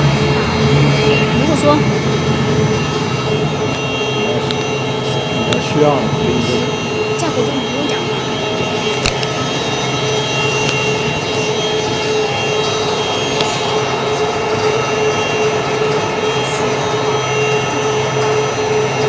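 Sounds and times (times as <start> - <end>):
floor-grinding machinery drone: 0.0 - 19.0
sharp clicks: 8.7 - 12.0.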